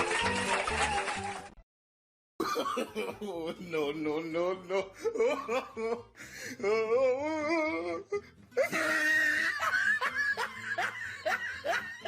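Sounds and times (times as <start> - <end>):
person laughing: 2.4 - 3.8, 4.6 - 12.0.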